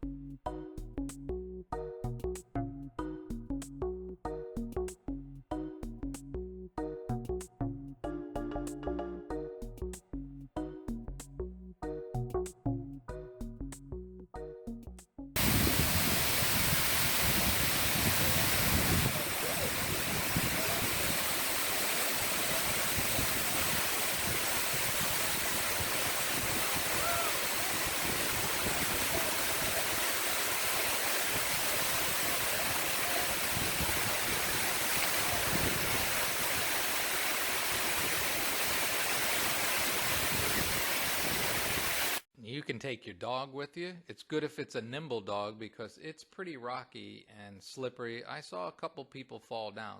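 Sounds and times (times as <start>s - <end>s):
waterfall pouring: 15.4s - 42.2s.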